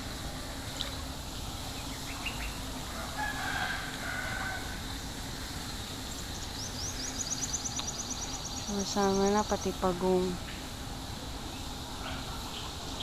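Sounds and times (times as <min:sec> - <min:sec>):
rooster crowing: 0:02.9 - 0:05.0.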